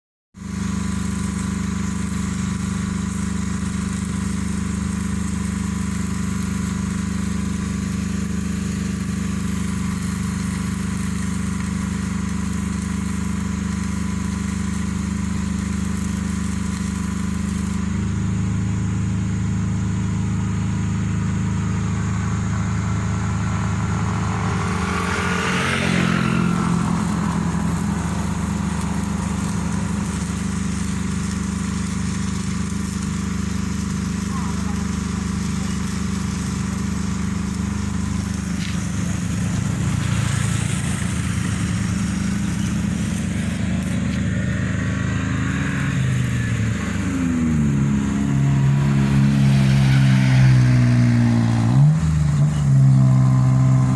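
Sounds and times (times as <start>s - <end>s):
excavator diesel engine running: 0.4s - 53.9s
rising and falling whine: 15.7s - 53.9s.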